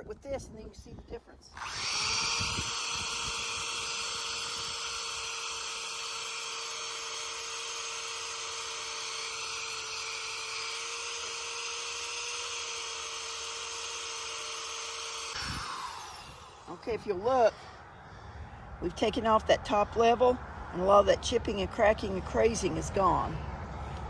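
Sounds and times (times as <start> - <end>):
drill wire brush scrubbing metal: 1.6 - 16.8.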